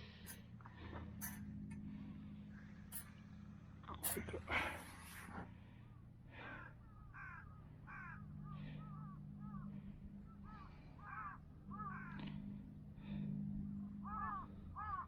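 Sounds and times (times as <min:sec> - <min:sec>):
faint low hum: 0:00.0 - 0:15.0
birds calling: 0:05.3 - 0:15.0.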